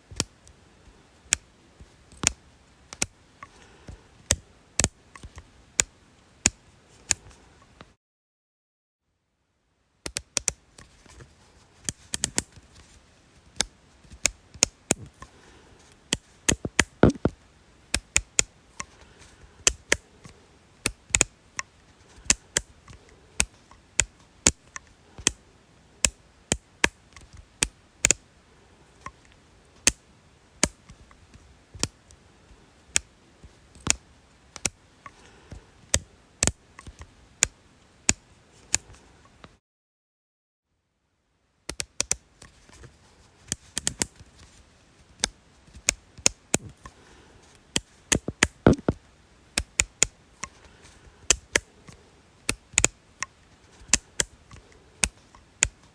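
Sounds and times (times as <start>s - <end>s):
small object clicking: 2.1s - 3.1s, 16.1s - 18.9s, 19.6s - 25.4s, 34.6s - 34.8s, 47.7s - 49.0s, 49.6s - 50.5s, 51.3s - 55.9s.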